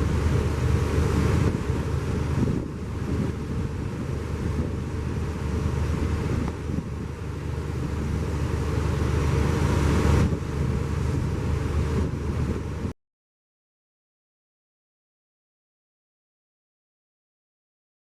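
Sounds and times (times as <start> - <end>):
water noise: 0.0 - 12.9
wind buffeting microphone: 0.0 - 12.9.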